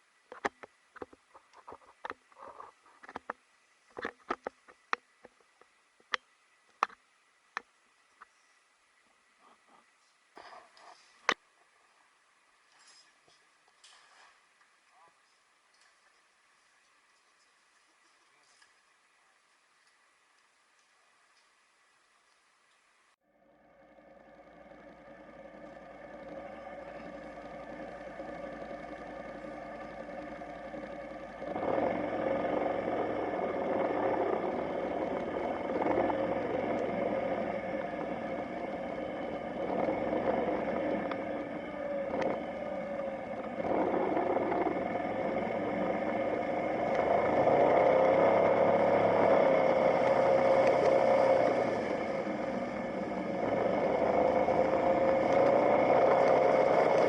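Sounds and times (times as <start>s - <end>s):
motorcycle engine running: 23.2s - 57.0s.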